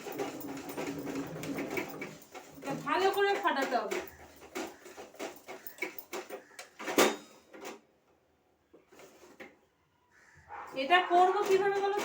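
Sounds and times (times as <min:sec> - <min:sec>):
hand beater scraping a basin: 0:00.0 - 0:06.0.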